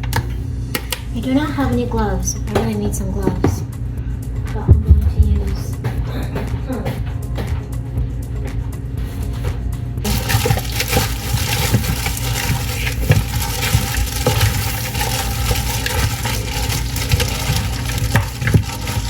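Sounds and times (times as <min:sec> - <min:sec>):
tap water running: 0:10.0 - 0:19.0.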